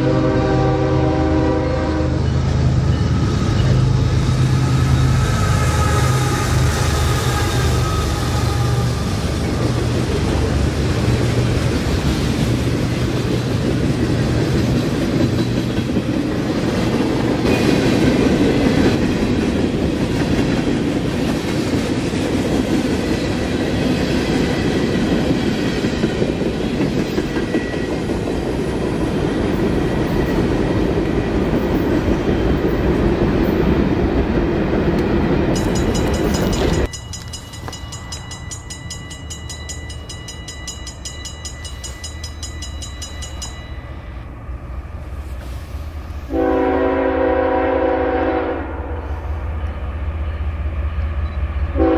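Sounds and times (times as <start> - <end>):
train wheels clattering on rails: 6.5 - 43.8.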